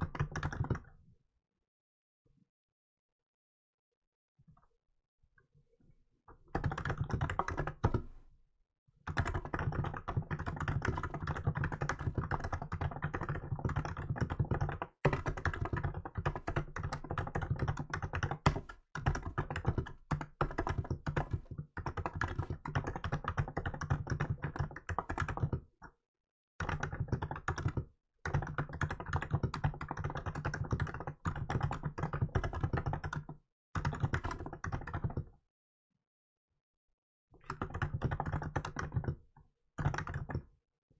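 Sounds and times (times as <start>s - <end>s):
fast keyboard typing: 0.1s - 0.9s, 6.5s - 8.2s, 9.1s - 25.7s, 26.6s - 35.3s, 37.4s - 39.2s, 39.8s - 40.5s.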